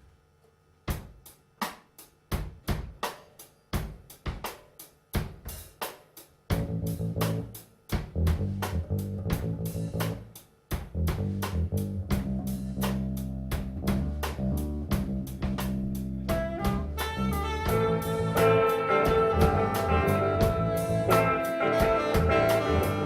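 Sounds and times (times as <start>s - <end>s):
drum kit beat: 0.9s - 23.0s
bass guitar: 6.5s - 23.0s
electric guitar: 16.3s - 23.0s.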